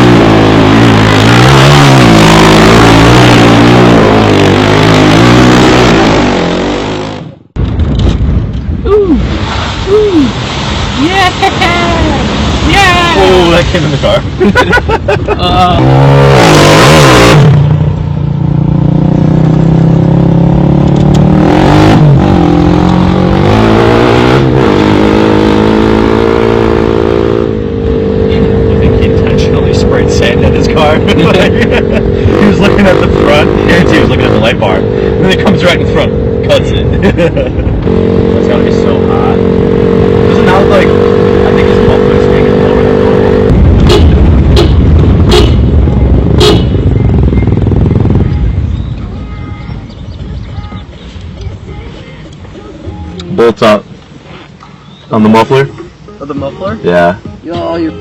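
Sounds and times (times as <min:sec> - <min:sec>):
quad engine revving: 0:00.0 - 0:07.5, 0:15.4 - 0:18.0, 0:18.6 - 0:48.8.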